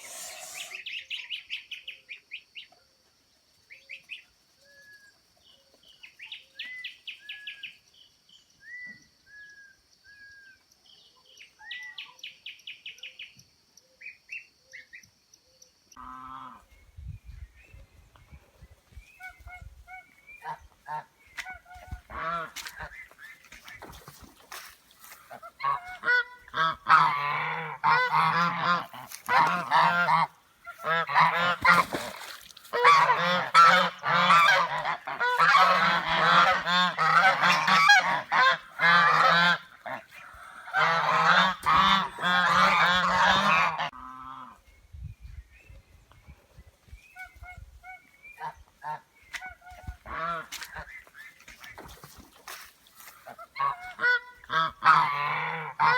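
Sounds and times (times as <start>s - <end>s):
geese honking: 19.4s - 23.8s, 25.0s - 44.6s, 47.2s - 51.8s, 53.0s - 55.9s.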